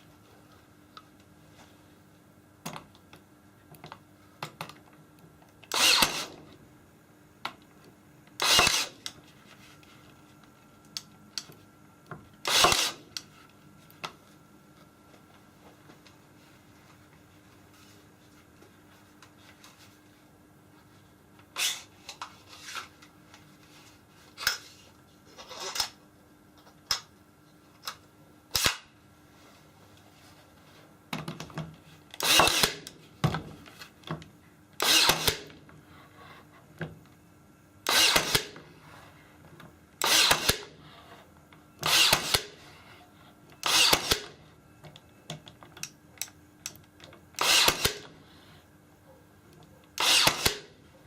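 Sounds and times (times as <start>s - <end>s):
power tool running in bursts: 50.0s - 50.6s.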